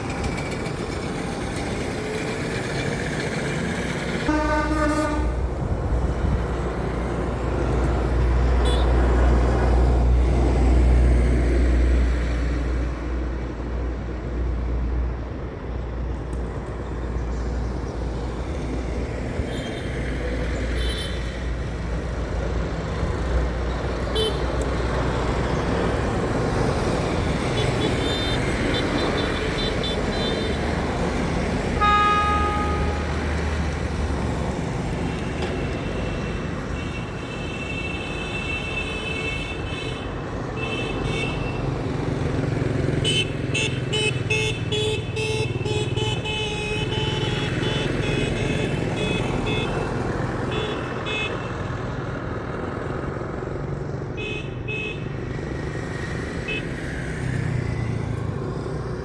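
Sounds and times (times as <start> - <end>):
trucks passing with road noise: 0.0 - 59.0
vehicle horn tooting: 4.2 - 5.4, 8.6 - 9.0, 31.7 - 33.3, 43.0 - 49.9.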